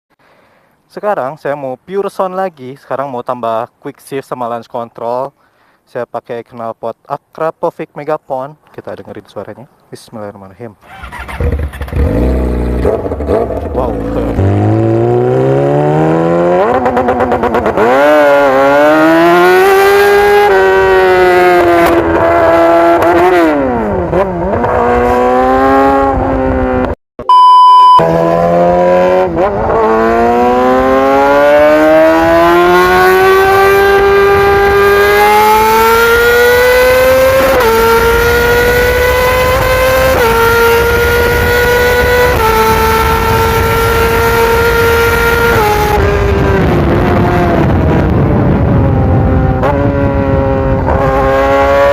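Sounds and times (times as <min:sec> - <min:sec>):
motorcycle engine revving: 0:10.9 - 0:27.0, 0:28.0 - 0:51.9
loud steady beep: 0:27.2 - 0:28.1.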